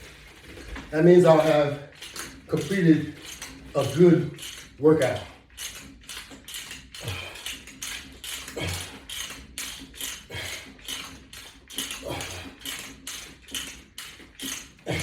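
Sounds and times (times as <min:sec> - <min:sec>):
man breathing hard: 0:06.9 - 0:13.0
man grunting: 0:08.5 - 0:09.0, 0:12.0 - 0:12.6.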